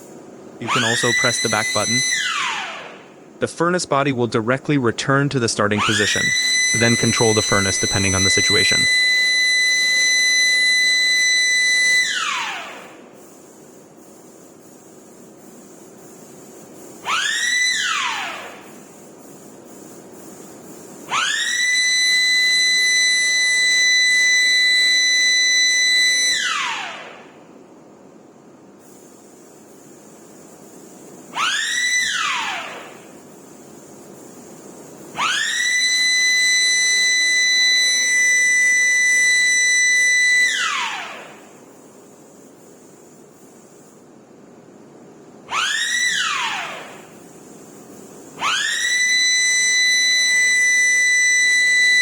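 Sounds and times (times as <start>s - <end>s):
warning siren winding: 0.6s - 3.1s, 5.8s - 13.0s, 17.0s - 18.8s, 21.1s - 27.2s, 31.3s - 33.2s, 35.1s - 41.6s, 45.5s - 47.3s, 48.3s - 52.0s.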